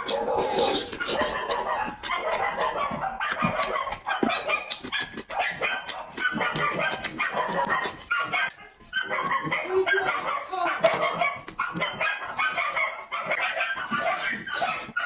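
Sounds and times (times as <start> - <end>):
chickens clucking: 0.0 - 15.0
pecking clicks: 1.2 - 10.2.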